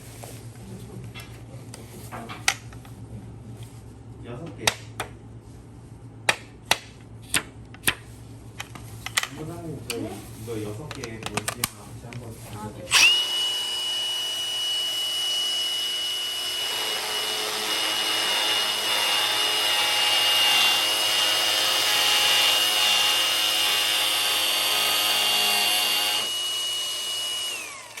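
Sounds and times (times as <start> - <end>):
power tool motor whine: 12.9 - 28.0.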